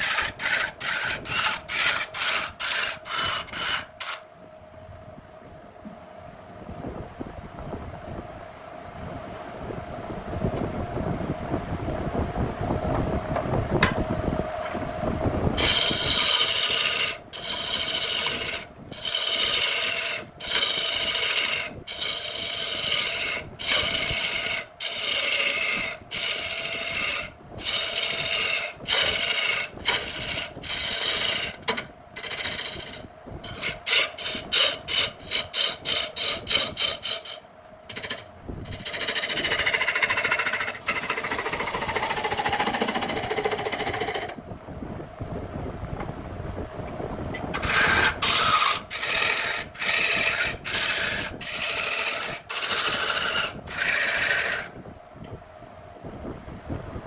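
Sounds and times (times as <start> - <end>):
wood being rasped by hand: 0.0 - 4.2, 15.6 - 44.4, 47.5 - 54.8
steady hum with rumble: 0.0 - 57.0.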